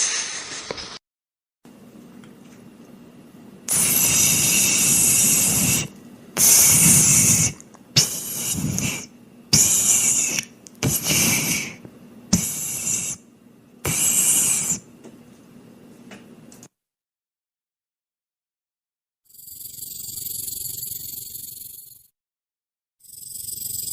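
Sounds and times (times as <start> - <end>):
animal hissing: 3.7 - 11.8, 12.4 - 14.9.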